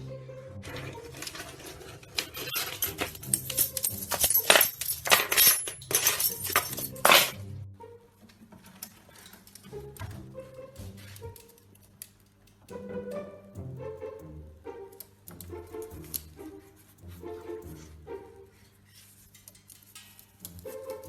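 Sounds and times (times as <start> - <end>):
background music: 0.0 - 8.6, 9.4 - 18.9, 20.4 - 21.0
clattering and jangling clicks: 1.2 - 7.4, 19.3 - 21.0.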